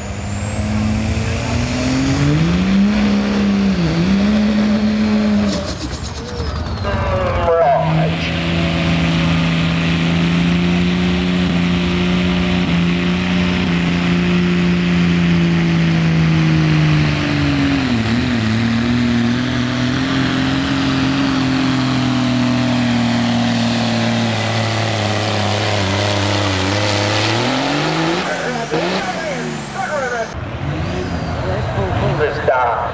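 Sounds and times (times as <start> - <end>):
diesel truck engine under load: 0.0 - 32.9.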